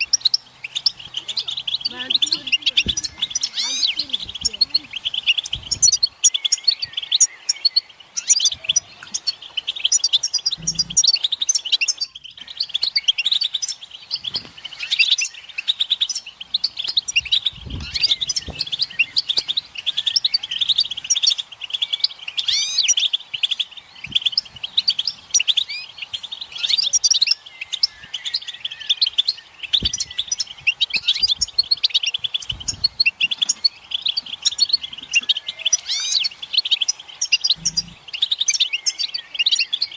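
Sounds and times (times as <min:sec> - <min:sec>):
finches twittering: 0:00.0 - 0:39.9.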